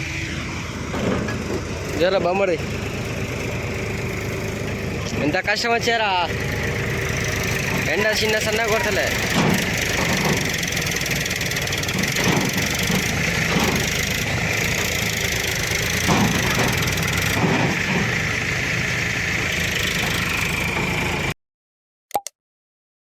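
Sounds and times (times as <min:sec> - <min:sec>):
tractor diesel engine running: 0:00.0 - 0:21.4
short clicks: 0:22.1 - 0:22.4.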